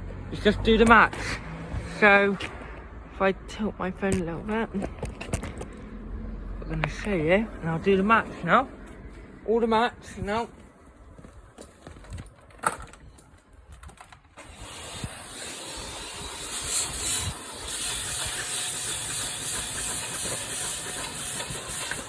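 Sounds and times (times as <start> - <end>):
vacuum cleaner running: 14.7 - 22.0.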